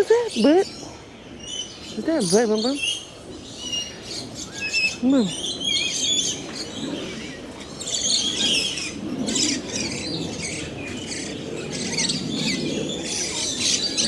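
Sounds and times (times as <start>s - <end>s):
birds chirping and twittering: 0.0s - 14.0s.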